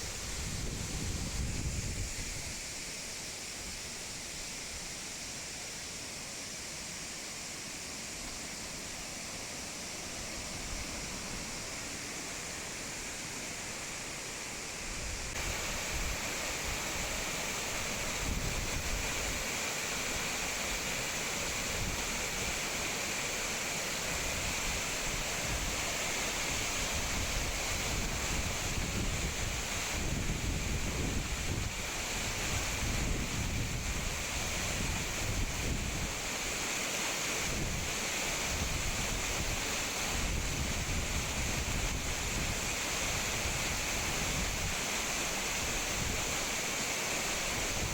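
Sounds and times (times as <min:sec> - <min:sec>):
waterfall rushing: 0:02.1 - 0:47.9.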